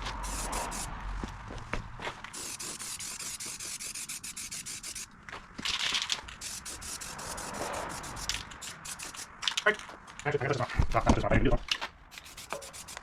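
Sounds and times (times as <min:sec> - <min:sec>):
rapid scraping strokes: 0:00.0 - 0:00.9, 0:02.3 - 0:05.1, 0:06.3 - 0:09.6, 0:12.1 - 0:13.0.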